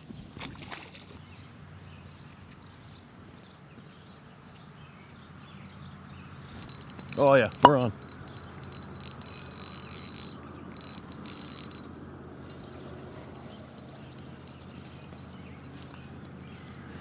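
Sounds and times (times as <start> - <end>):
fishing reel clicking and whirring: 6.4 - 17.0.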